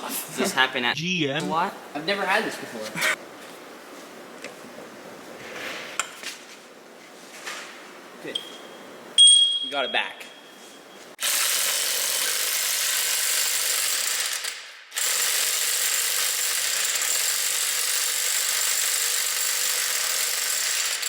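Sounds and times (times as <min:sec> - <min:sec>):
powered wrench running: 0:11.2 - 0:21.0.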